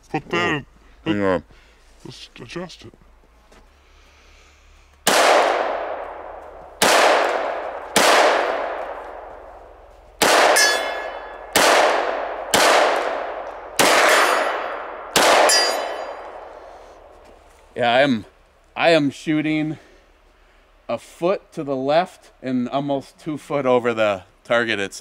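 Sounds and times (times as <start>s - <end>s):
pistol shots with echo: 5.0s - 16.6s.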